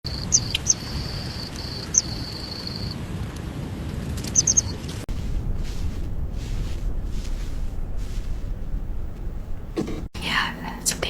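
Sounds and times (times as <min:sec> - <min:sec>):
insect chirps: 0:00.1 - 0:03.0
faint soft hissing: 0:05.1 - 0:11.0
low room rumble: 0:05.1 - 0:11.0.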